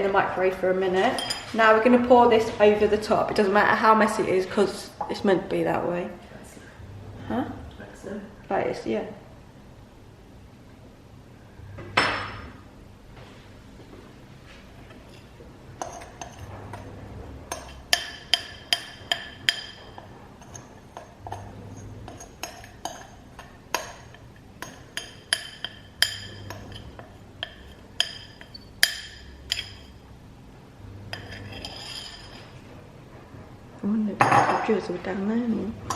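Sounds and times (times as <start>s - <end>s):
spoon clinking against a bowl: 1.1s - 1.5s, 15.8s - 16.9s, 17.5s - 30.0s, 31.1s - 32.4s.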